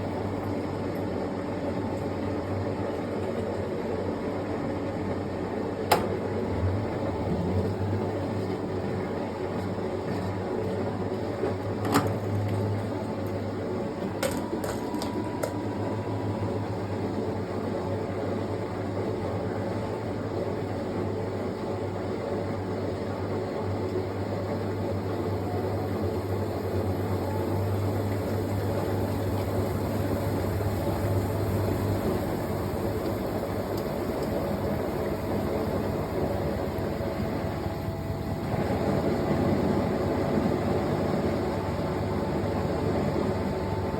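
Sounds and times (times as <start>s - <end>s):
washing machine hum: 0.0s - 43.9s
washing machine clicks: 5.8s - 6.4s, 11.4s - 13.3s.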